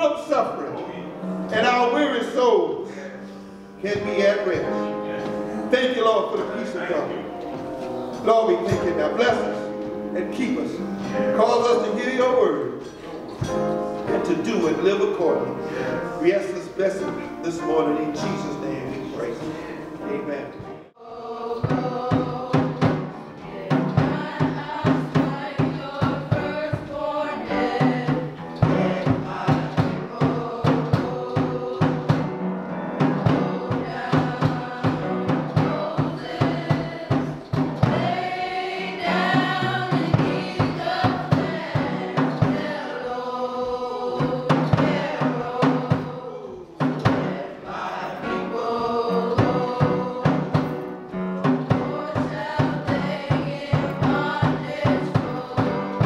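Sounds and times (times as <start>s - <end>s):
choir singing gospel: 0.0s - 56.0s
drum kit beat: 5.9s - 12.4s, 21.4s - 56.0s.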